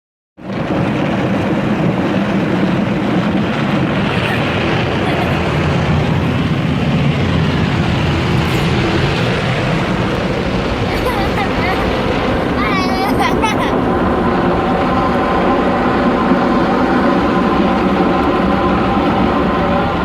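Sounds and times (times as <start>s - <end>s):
car rushing noise with rumble: 0.4s - 20.0s.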